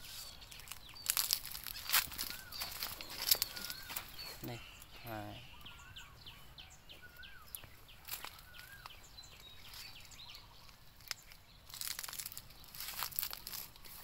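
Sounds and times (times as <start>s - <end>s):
leaves rustling: 0.0s - 5.3s, 7.6s - 14.0s
bird whistled notes: 0.0s - 6.4s
birds chirping: 0.0s - 14.0s.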